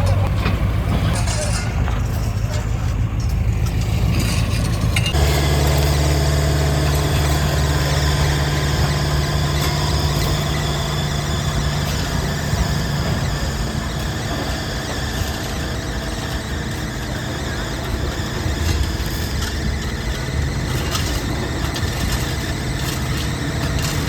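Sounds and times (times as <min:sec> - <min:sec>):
diesel machinery engine drone: 0:00.0 - 0:24.0
high squealing hiss: 0:05.1 - 0:21.6.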